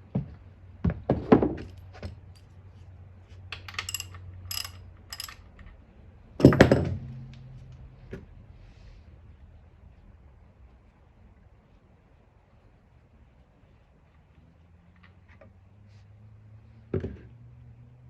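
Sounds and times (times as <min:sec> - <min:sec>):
tools and metal parts knocking: 0:03.5 - 0:05.8, 0:06.4 - 0:07.2
light metallic clinks: 0:03.6 - 0:05.6.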